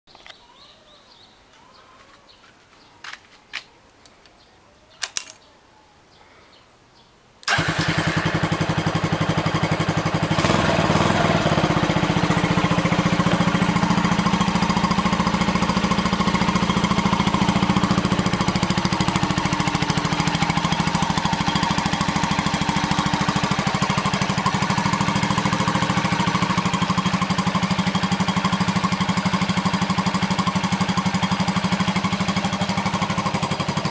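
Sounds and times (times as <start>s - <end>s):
motorcycle engine starting and idling: 7.4s - 33.9s.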